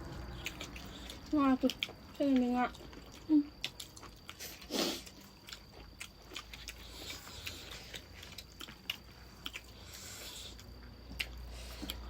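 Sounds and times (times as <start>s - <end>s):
person chewing: 0.0s - 12.0s.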